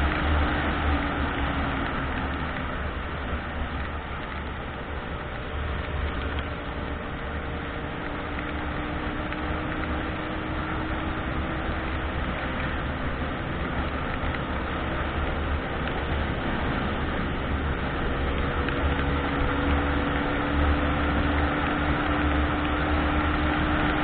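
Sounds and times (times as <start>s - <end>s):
car engine drone: 0.0s - 24.0s
road hiss in rain: 0.0s - 24.0s.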